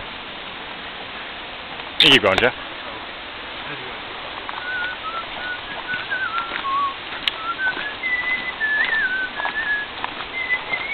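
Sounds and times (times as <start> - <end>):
steady rushing hiss: 0.0 - 10.9
short whistled notes: 4.6 - 10.9.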